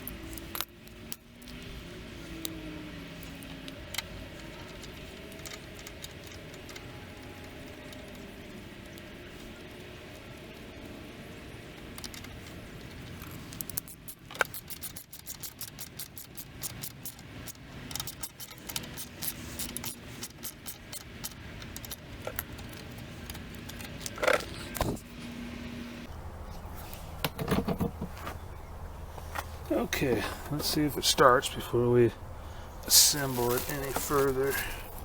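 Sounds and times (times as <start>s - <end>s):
metal tools clicking and clinking: 2.4s - 8.3s, 11.8s - 24.8s.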